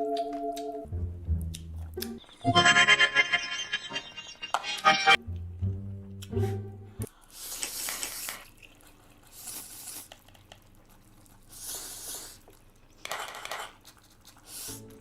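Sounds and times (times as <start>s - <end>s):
hissy mouth eating sounds: 7.2s - 15.0s.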